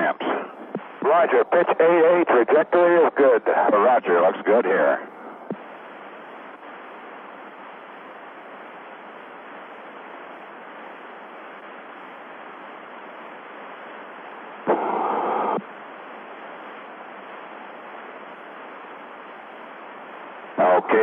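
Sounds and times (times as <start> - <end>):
burst of radio static: 0.0 - 6.9, 14.5 - 21.0
radio static hiss: 0.0 - 21.0.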